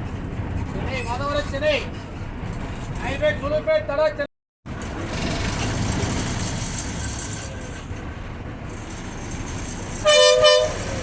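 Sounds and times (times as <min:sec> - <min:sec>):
bus engine and road rumble: 0:00.0 - 0:11.0
two-tone horn blare: 0:10.0 - 0:11.0.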